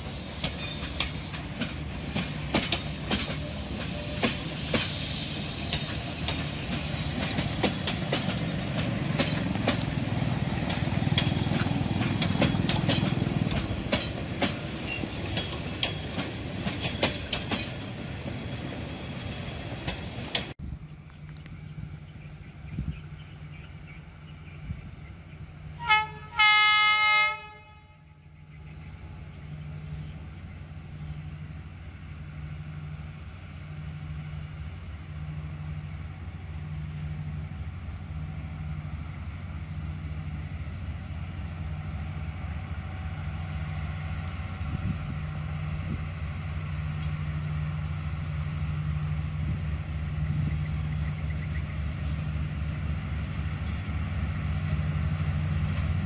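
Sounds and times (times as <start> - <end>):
locomotive horn: 25.8 - 28.4.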